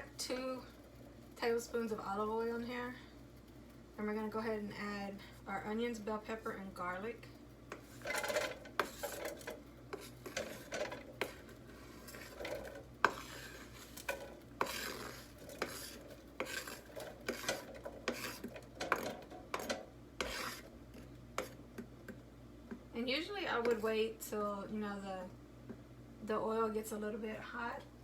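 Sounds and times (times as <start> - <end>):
utensil stirring vegetables in oil: 7.6 - 21.6.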